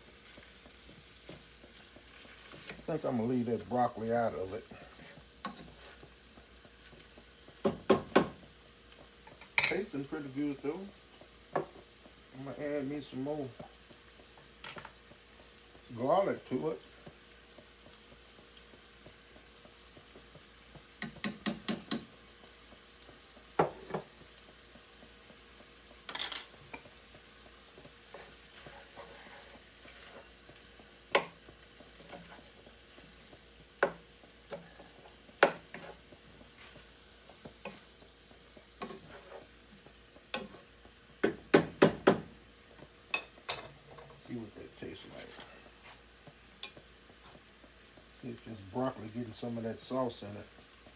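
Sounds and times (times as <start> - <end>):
utensil tapping a pan: 0.2 - 9.9, 11.2 - 12.2, 13.0 - 44.3, 46.2 - 48.0
utensil scraping a pan: 27.8 - 39.6, 40.3 - 40.7.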